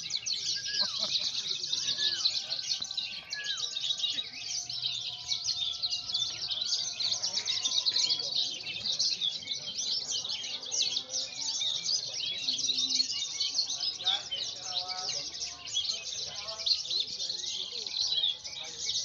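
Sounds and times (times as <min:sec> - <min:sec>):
lark singing chirps and trills: 0:00.0 - 0:19.0.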